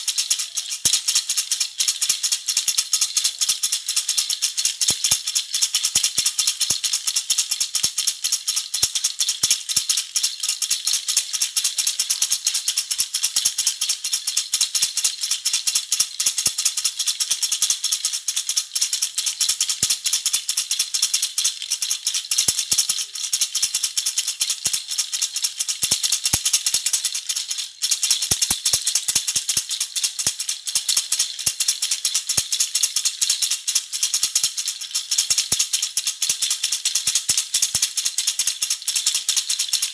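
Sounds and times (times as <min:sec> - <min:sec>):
baby rattle jingling: 0:21.7 - 0:31.7.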